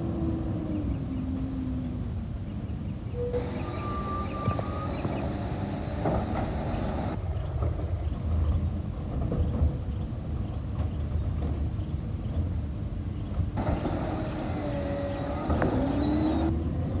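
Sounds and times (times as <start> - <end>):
diesel engine rumbling: 3.2 - 7.2, 13.5 - 16.7
faint hiss: 3.2 - 7.2, 13.6 - 16.5
short tones: 3.3 - 7.2.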